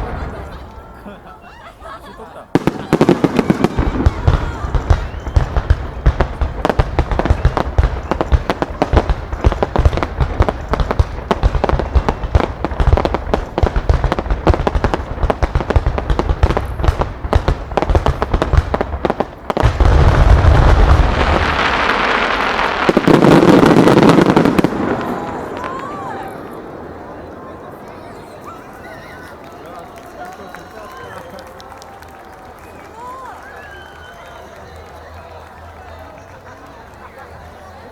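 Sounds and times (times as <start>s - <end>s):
fireworks bangs and crackling: 0.0s - 37.9s
rumble of overlapping explosions: 2.6s - 26.8s.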